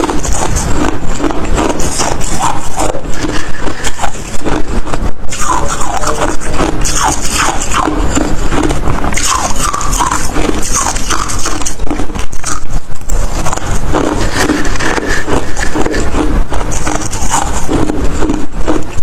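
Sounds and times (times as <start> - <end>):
person chewing ice crunching: 0.0 - 19.0.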